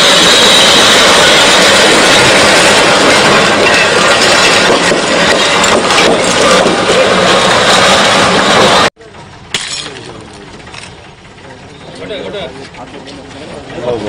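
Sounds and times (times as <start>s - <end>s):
glass breaking: 9.5s - 10.2s.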